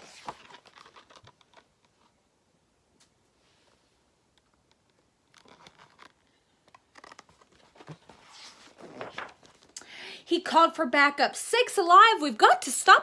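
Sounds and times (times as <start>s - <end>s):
paper page rustling and turning: 0.0s - 2.2s, 4.4s - 9.8s.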